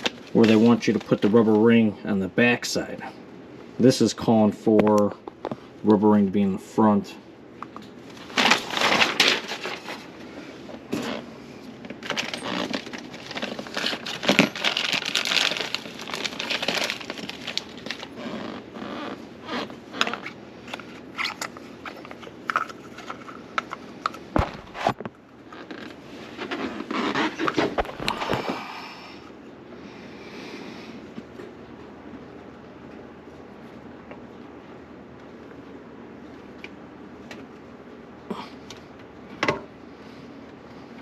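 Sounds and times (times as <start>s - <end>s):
plastic rustling and crinkling: 0.0s - 1.6s, 8.0s - 28.6s.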